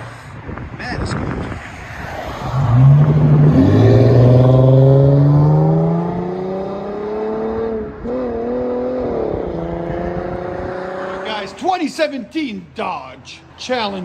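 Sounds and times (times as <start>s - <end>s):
car engine accelerating hard: 2.3s - 11.5s.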